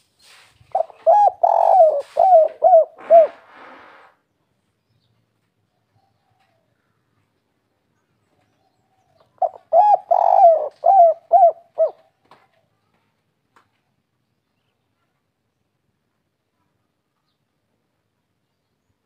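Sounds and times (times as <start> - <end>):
dove cooing: 0.7 - 3.9, 9.0 - 12.2.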